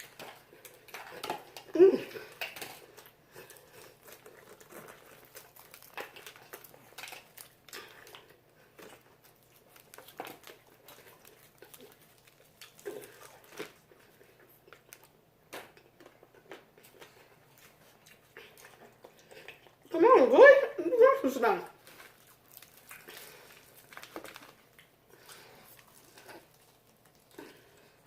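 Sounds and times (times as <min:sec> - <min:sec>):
chewing and crunching: 0:00.0 - 0:19.9, 0:21.7 - 0:28.0
small clicks and crackles: 0:02.3 - 0:14.1, 0:21.8 - 0:27.6.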